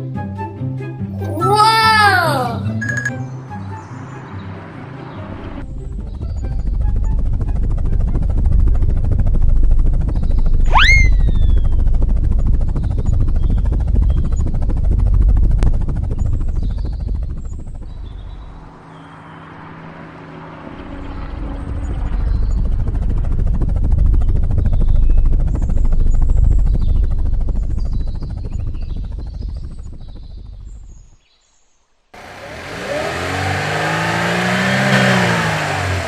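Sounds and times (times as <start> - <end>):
helicopter rotor chopping: 5.8 - 17.8, 21.9 - 30.7, 32.2 - 36.0.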